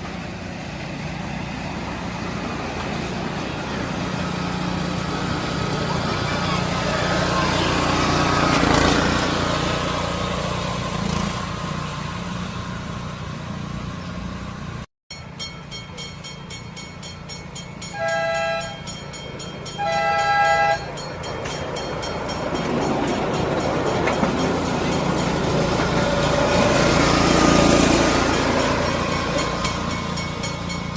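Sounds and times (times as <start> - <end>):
train running rumble: 0.0 - 30.9
two-tone train horn toots: 17.8 - 19.0, 19.7 - 21.0.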